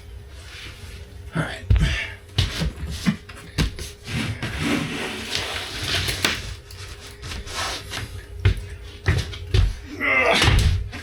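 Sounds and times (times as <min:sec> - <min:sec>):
rubbing and scraping of wood: 0:02.4 - 0:08.2.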